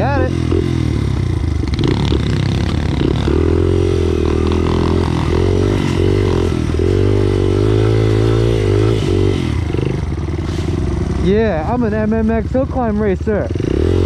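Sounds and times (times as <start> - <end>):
small motorbike engine revving: 0.0 - 14.0.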